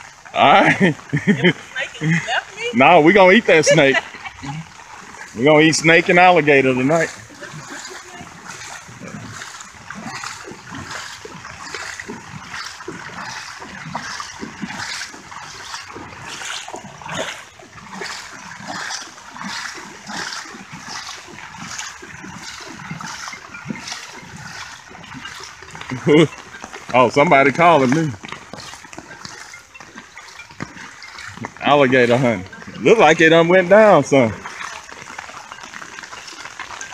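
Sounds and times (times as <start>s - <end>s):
feet splashing through water: 0.0s - 36.9s.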